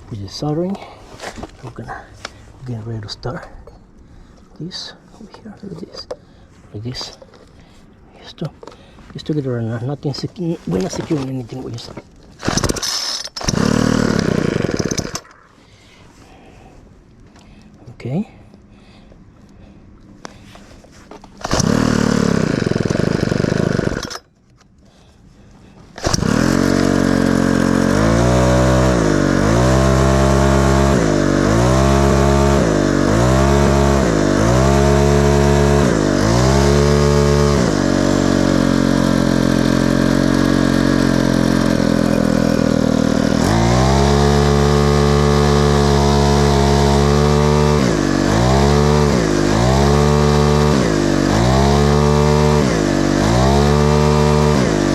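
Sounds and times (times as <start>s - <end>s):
small engine running: 12.4s - 15.3s, 21.4s - 24.3s, 26.0s - 54.9s.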